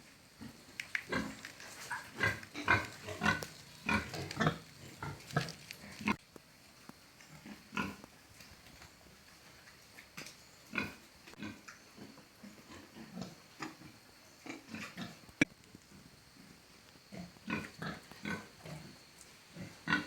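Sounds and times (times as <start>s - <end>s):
pigs grunting: 0.4s - 6.2s, 19.6s - 20.0s.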